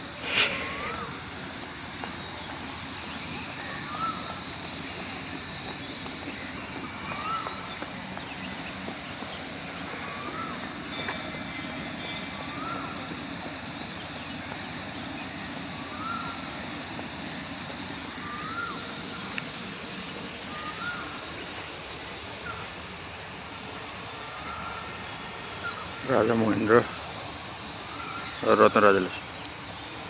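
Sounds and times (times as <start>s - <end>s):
running water rushing: 0.0s - 30.0s
short upward-sliding call: 0.2s - 1.2s.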